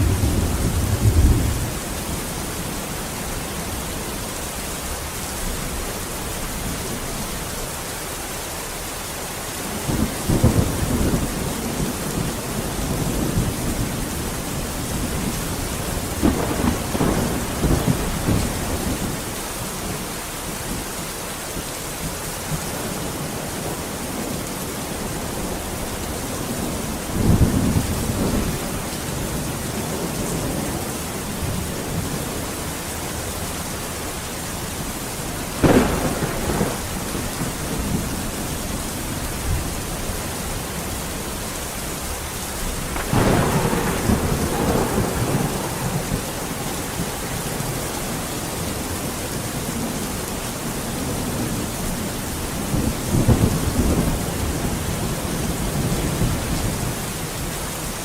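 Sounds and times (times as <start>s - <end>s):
thunder: 0.0s - 2.2s, 9.8s - 19.3s, 35.6s - 39.8s, 42.7s - 49.4s
steady rain: 0.0s - 58.0s.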